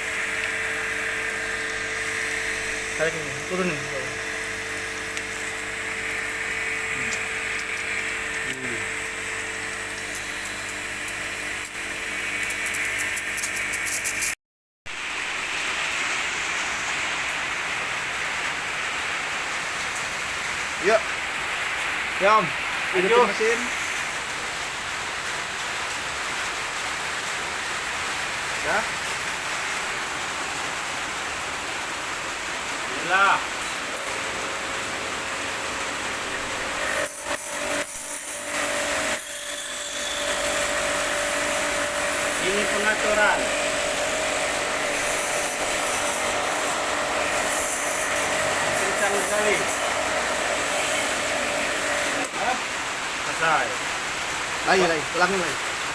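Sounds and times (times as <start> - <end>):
pressure washer spraying water: 0.0 - 5.6, 40.6 - 52.8
water spraying from hose: 0.0 - 11.8, 12.4 - 55.9
motor humming with clicks: 0.0 - 14.4, 33.6 - 52.4.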